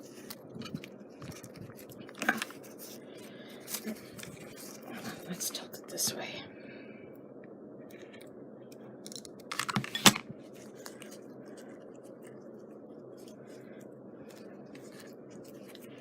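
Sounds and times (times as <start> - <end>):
crafting materials rustling: 0.0 - 5.3, 9.3 - 16.0
steady low hum: 0.0 - 16.0.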